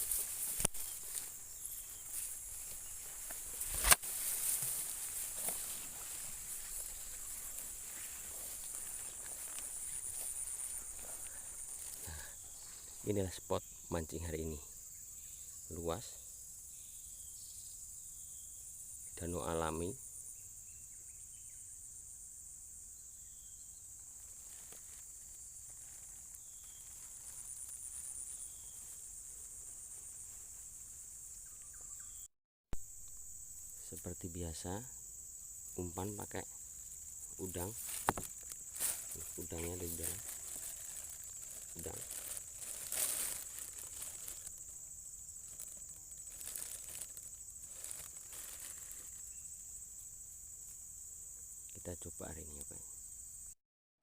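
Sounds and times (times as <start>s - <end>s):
faint rustles: 0.0s - 13.1s, 24.1s - 31.3s, 36.9s - 49.3s
insect chorus: 0.0s - 53.6s.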